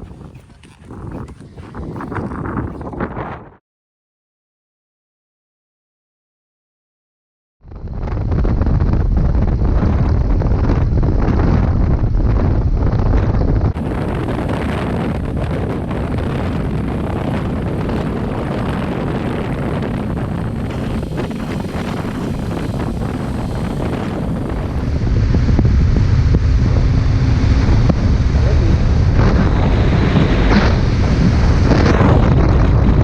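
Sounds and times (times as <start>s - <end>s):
wind rushing over microphone: 0.0s - 3.6s, 7.6s - 33.0s
motorcycle engine: 13.8s - 31.1s
road noise: 13.8s - 31.1s.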